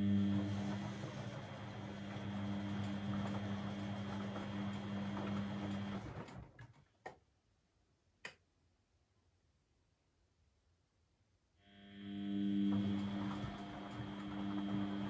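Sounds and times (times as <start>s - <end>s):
washing machine humming and rushing: 0.0s - 6.8s, 11.9s - 15.0s.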